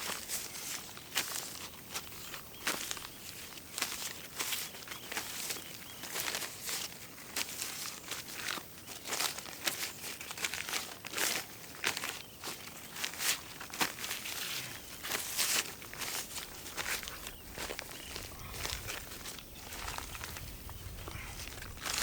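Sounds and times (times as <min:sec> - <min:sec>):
soil crunching and crinkling: 0:00.0 - 0:22.0.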